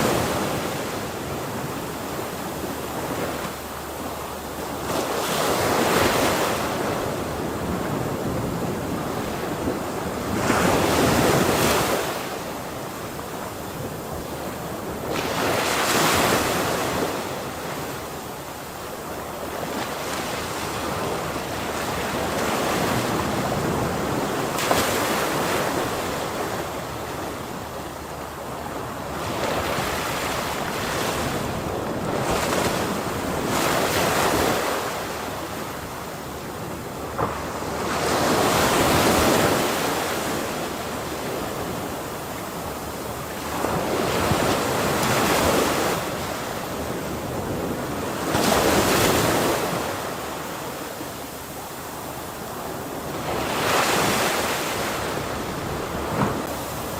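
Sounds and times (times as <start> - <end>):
ocean waves breaking on shore: 0.0 - 56.9.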